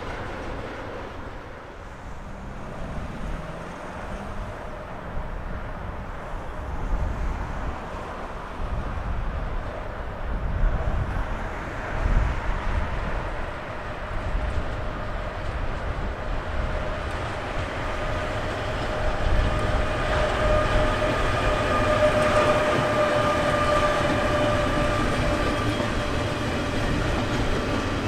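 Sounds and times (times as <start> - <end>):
train rumbling over track: 0.0 - 28.0.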